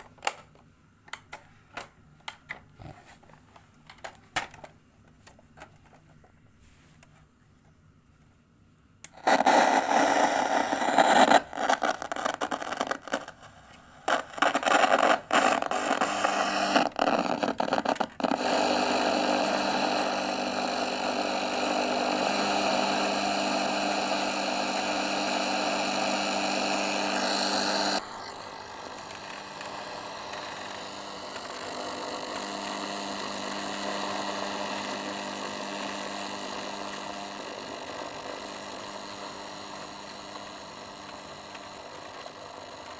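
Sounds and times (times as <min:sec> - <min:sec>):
radio static hiss: 0:09.2 - 0:18.3, 0:27.0 - 0:30.8.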